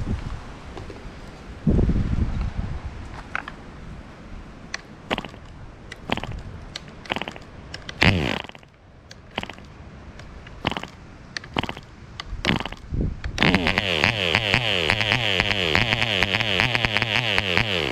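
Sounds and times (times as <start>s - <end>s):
model airplane engine sputtering: 5.1s - 8.7s, 9.3s - 9.7s, 10.6s - 11.9s, 12.5s - 17.9s.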